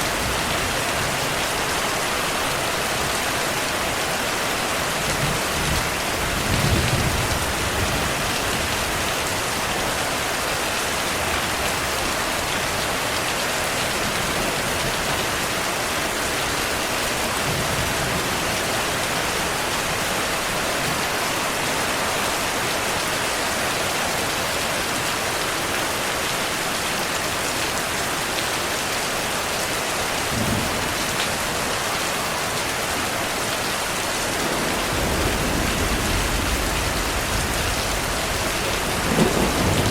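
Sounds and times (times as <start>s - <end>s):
heavy rain falling: 0.0s - 39.9s
thunder rumbling: 34.2s - 39.9s.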